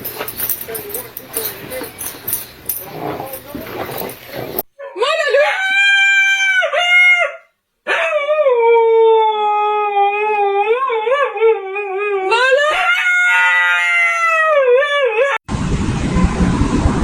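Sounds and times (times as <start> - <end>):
dog howling: 4.8 - 15.4.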